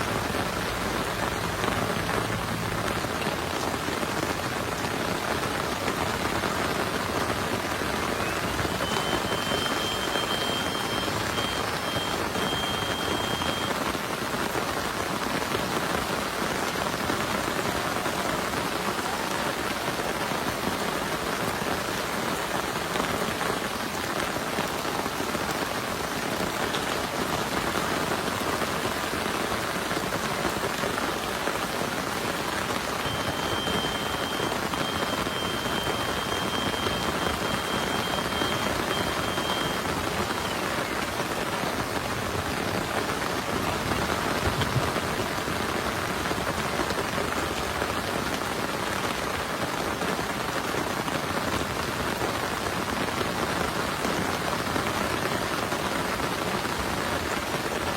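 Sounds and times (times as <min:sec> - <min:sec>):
heavy rain falling: 0:00.0 - 0:57.9
faint high tone: 0:08.0 - 0:13.8, 0:33.0 - 0:41.3.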